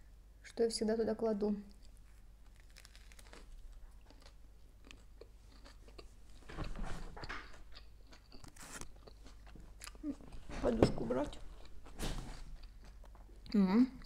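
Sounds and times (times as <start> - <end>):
crunching and chewing toasted bread: 1.7 - 6.3, 7.2 - 10.5, 11.5 - 13.6.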